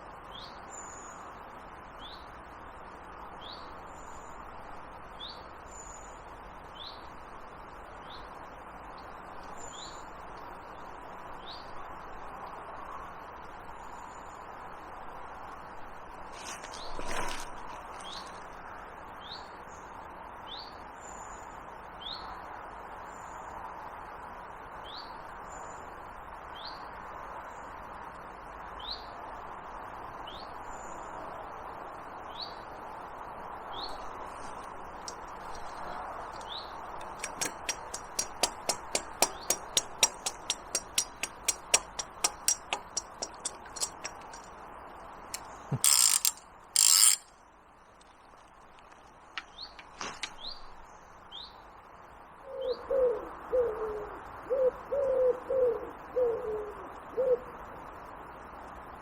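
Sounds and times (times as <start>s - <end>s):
brief rustle: 16.3s - 18.6s, 45.3s - 47.3s, 48.0s - 50.8s
fishing reel ratchet clicking: 37.0s - 44.5s, 45.4s - 47.3s.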